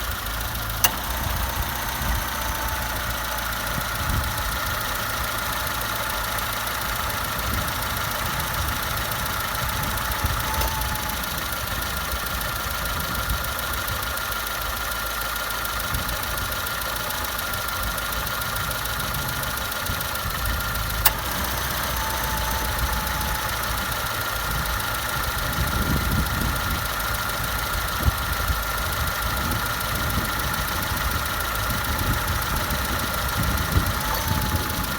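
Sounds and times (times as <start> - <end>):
car engine idling: 0.0 - 34.9
sharp click: 0.7 - 11.3, 21.0 - 23.7.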